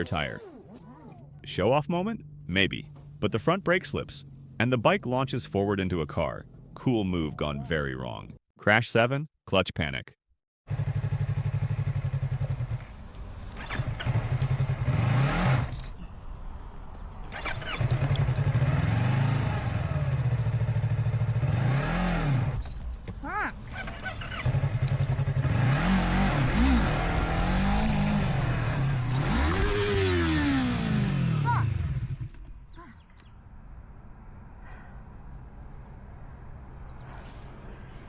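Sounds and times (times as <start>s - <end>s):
motorcycle engine revving: 2.0s - 4.8s, 10.7s - 15.9s, 17.3s - 32.6s.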